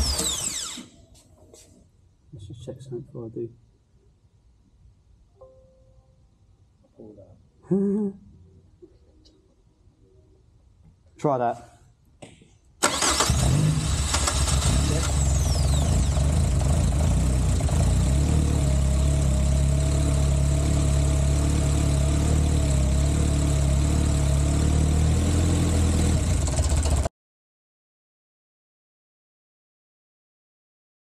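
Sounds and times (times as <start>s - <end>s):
car engine starting and idling: 12.8s - 27.1s.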